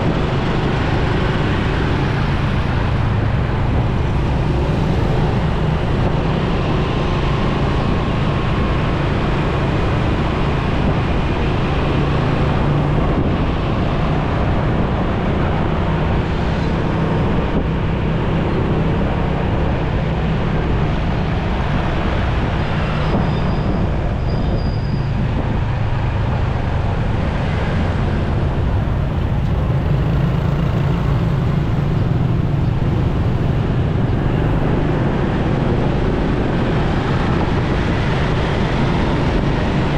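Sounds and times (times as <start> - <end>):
road noise: 0.0 - 39.9
wind noise: 0.0 - 39.9.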